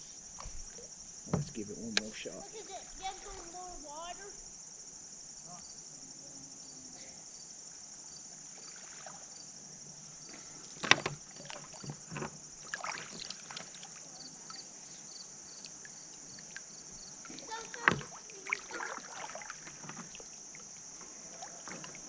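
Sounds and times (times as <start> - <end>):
insects buzzing: 0.0 - 22.0
kayak knocking: 0.3 - 2.2, 10.3 - 13.8, 15.7 - 22.0
water splashes: 0.4 - 4.2, 8.4 - 9.4, 10.4 - 15.0, 15.6 - 22.0.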